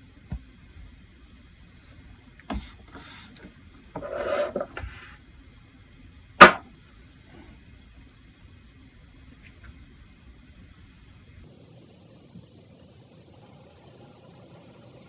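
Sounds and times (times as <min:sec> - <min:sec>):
rubbing rustle: 0:02.5 - 0:05.2.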